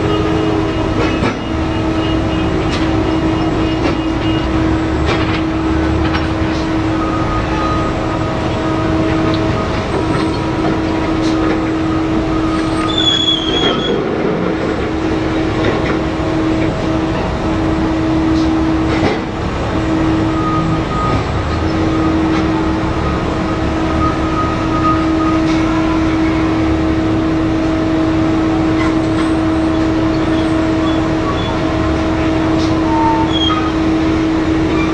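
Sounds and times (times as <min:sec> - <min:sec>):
dump truck engine rumbling: 0:00.0 - 0:34.9.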